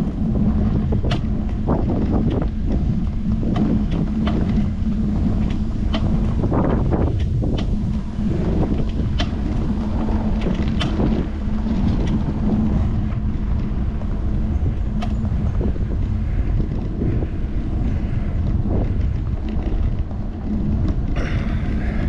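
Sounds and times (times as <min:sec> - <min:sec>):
bike clicks and rattles: 0:00.0 - 0:22.0
heavy low rumble: 0:00.0 - 0:22.0
steady low hum: 0:00.0 - 0:22.0
wind rushing over microphone: 0:00.0 - 0:22.0.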